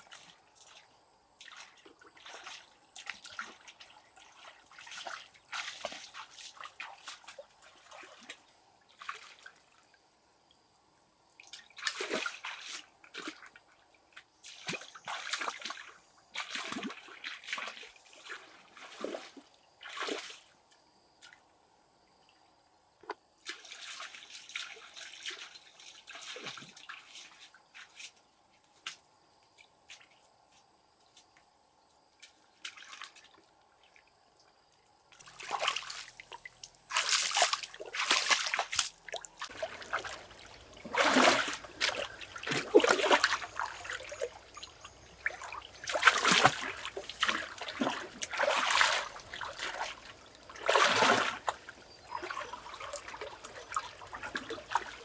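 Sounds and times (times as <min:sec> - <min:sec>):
water dripping and trickling: 0:35.2 - 0:55.0
water splashing and pouring: 0:35.2 - 0:55.0.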